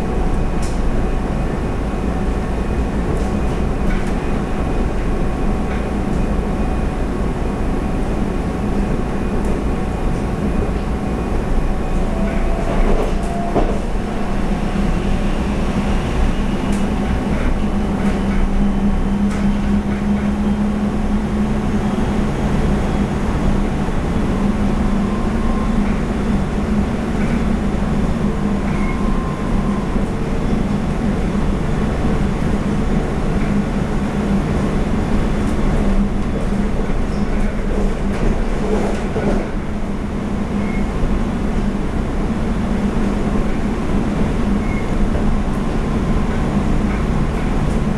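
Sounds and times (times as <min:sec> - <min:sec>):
train cabin rumble: 0:00.0 - 0:47.9.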